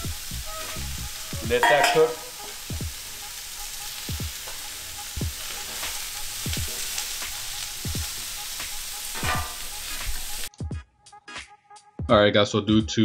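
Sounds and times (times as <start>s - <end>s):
vegetables sizzling on griddle: 0.0s - 10.5s
metal spatula scraping: 1.5s - 2.6s, 4.4s - 7.6s, 9.0s - 10.2s.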